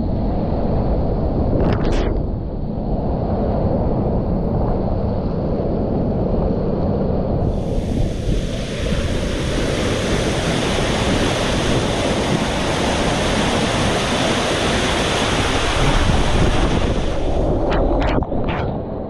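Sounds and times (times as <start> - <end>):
wind buffeting microphone: 0.0 - 19.0
water rushing and splashing: 7.6 - 18.6.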